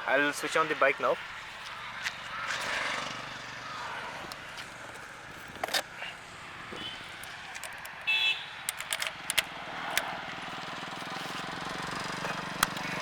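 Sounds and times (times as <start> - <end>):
motorcycle approaching: 1.3 - 7.5, 9.0 - 13.0.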